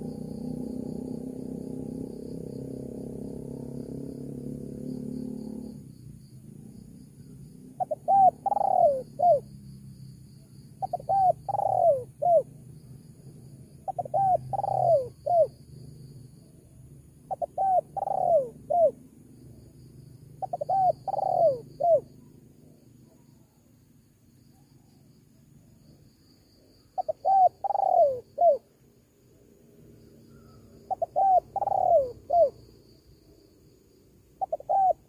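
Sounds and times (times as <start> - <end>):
faint insect chirring: 0.0 - 35.0
dove cooing: 7.7 - 9.5, 10.8 - 12.5, 13.8 - 15.6, 17.3 - 19.0, 20.4 - 23.2, 26.8 - 28.7, 30.3 - 32.7, 34.4 - 35.0.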